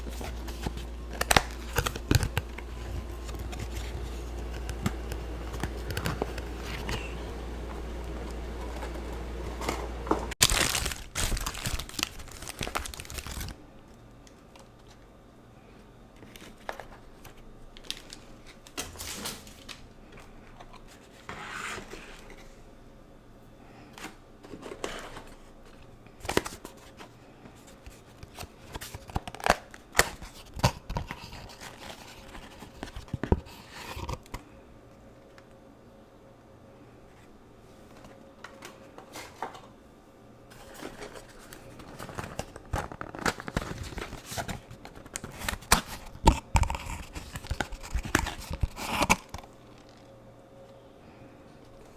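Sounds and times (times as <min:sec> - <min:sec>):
paper wrappers tearing and crinkling: 0:00.0 - 0:07.3, 0:08.0 - 0:13.6, 0:40.5 - 0:50.1.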